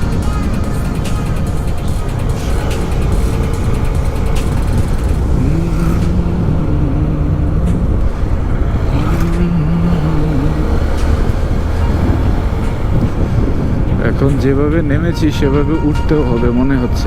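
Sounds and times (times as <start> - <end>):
low steady hum: 0.0 - 16.9
motorcycle engine and wind rumble: 0.0 - 17.0.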